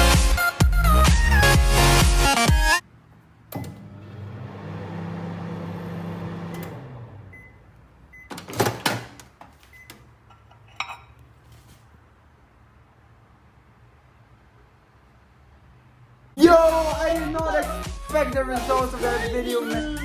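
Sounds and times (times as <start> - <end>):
microwave oven humming: 3.0 - 8.4.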